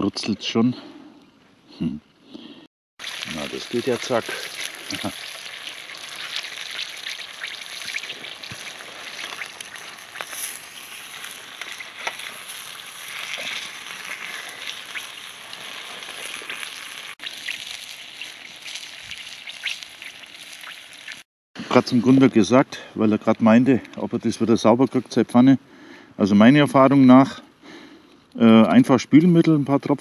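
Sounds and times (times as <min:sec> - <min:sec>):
chicken sizzling in a pan: 0:03.0 - 0:21.2.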